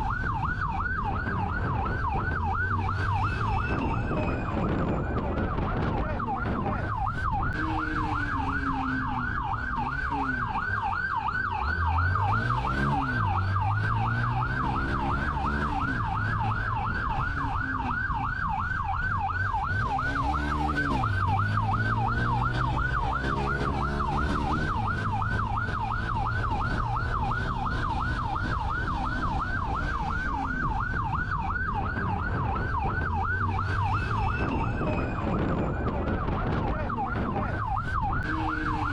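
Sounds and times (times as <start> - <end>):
police siren yelping: 0.0 - 38.9
car engine revving: 7.5 - 18.3, 19.5 - 31.6.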